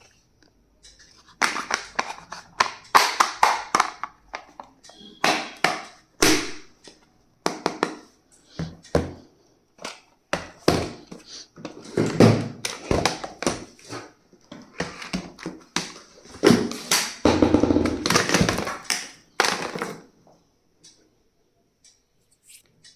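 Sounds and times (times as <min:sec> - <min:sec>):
stationery tapping and knocking: 0:01.3 - 0:13.8, 0:14.5 - 0:20.1.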